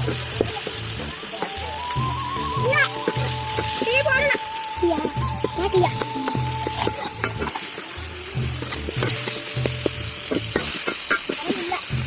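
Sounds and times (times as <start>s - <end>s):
food sizzling in oil: 0.0s - 12.0s
spoon scraping a pan: 6.1s - 7.9s, 8.6s - 11.7s.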